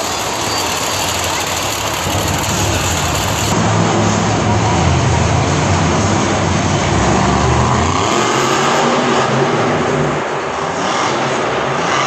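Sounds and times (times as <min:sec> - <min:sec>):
dense steady noise: 0:00.0 - 0:07.0
monster truck engine running: 0:00.0 - 0:10.8.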